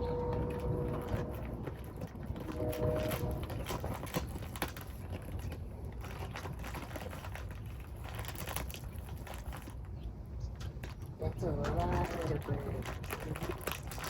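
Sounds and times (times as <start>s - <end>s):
low steady rumble: 0.0s - 14.0s
bag of seed rustling: 11.8s - 14.0s.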